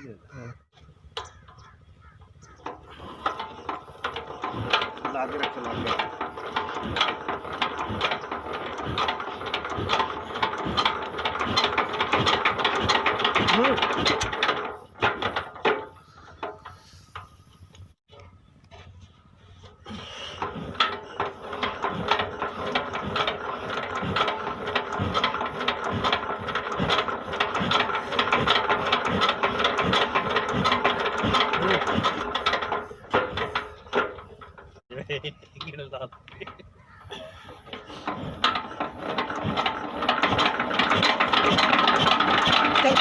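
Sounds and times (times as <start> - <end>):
diesel engine knocking: 2.5 - 16.6, 20.4 - 34.8, 37.6 - 43.0.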